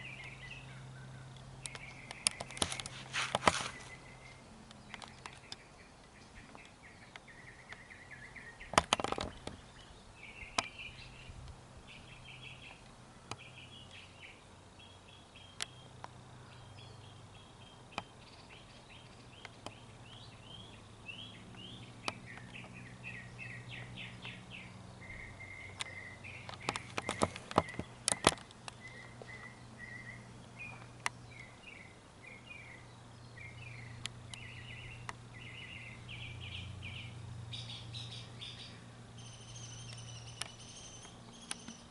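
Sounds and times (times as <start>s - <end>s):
small birds chirping: 0.0s - 41.9s
sharp clicks: 1.3s - 3.8s, 8.7s - 9.6s, 25.7s - 29.1s, 39.8s - 41.9s.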